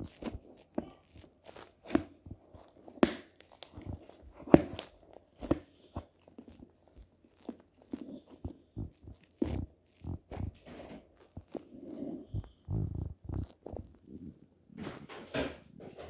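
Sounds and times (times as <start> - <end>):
slime squishing and clicking: 1.4 - 7.6.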